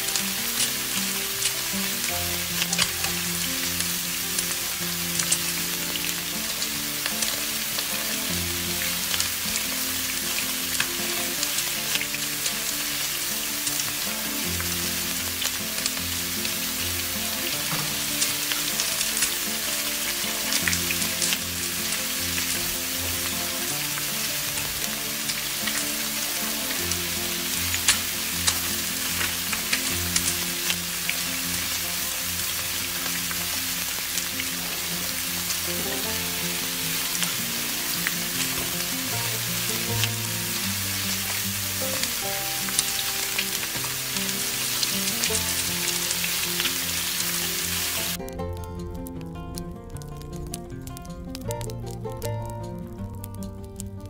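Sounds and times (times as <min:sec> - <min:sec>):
fritters sizzling in oil: 0:00.0 - 0:49.1
sharp crackles: 0:00.0 - 0:54.0
soft instrumental music: 0:00.0 - 0:54.0.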